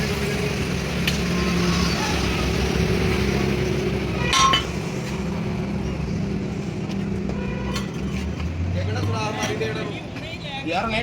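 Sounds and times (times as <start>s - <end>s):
metal clinking on metal: 4.3s - 4.8s.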